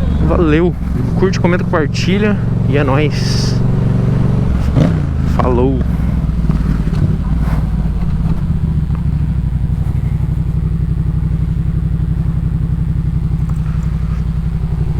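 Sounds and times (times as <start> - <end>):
motorcycle engine idling: 0.0 - 14.9.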